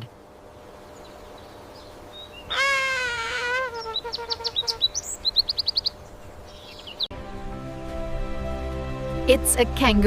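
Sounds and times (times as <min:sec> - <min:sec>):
bird calling: 0:00.9 - 0:07.1.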